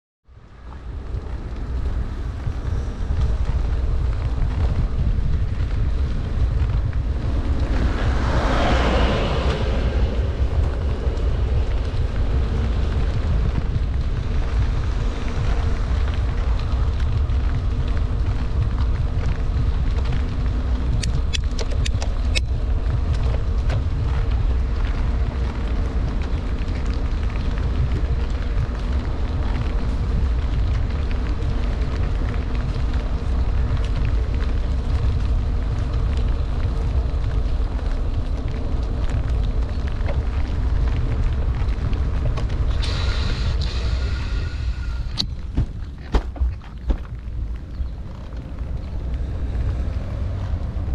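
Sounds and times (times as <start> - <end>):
hiss of wet road and rain: 0.3 - 50.9
wind buffeting microphone: 0.3 - 50.9
sharp clicks: 21.0 - 22.5.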